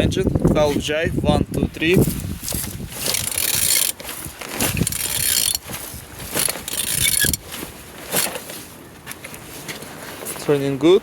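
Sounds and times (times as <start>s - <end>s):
engine turned over by hand rasping: 2.0s - 8.6s.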